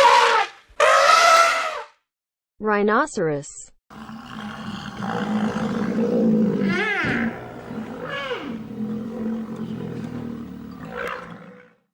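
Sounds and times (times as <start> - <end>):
rhinoceros high calls: 0.0 - 1.8, 3.9 - 11.7
rhinoceros low rumbling: 3.9 - 11.7.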